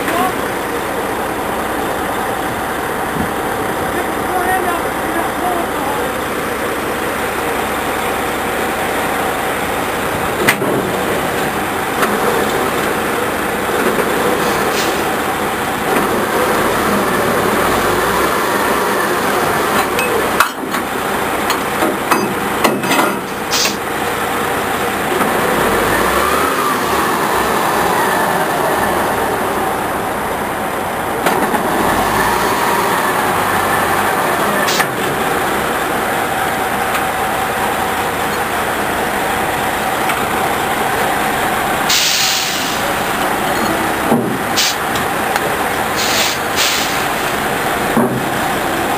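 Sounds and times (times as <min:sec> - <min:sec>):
truck engine running: 0:00.0 - 0:48.9
sharp knocks and clanks: 0:10.4 - 0:13.0, 0:19.7 - 0:23.8, 0:43.5 - 0:45.5, 0:47.8 - 0:48.5.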